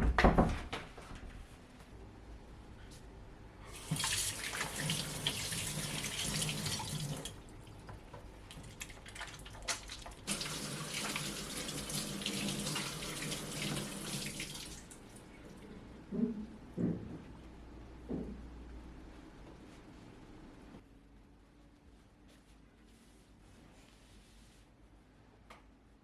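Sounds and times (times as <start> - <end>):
water running from tap into sink: 3.7 - 7.4, 9.7 - 15.0.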